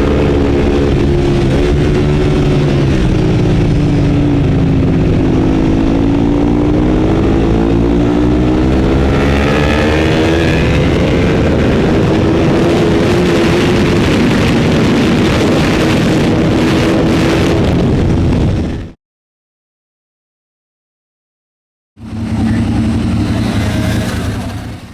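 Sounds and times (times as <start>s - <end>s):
racing motorcycle engine: 0.0s - 18.7s, 22.0s - 24.9s
wind rush: 0.0s - 19.0s, 22.0s - 24.9s.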